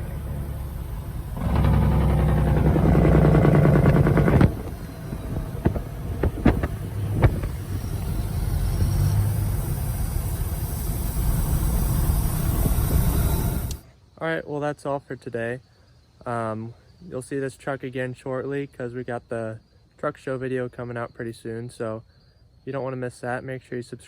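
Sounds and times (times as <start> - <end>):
truck diesel engine: 0.0 - 13.8
sharp clicks or knocks: 1.4 - 7.7.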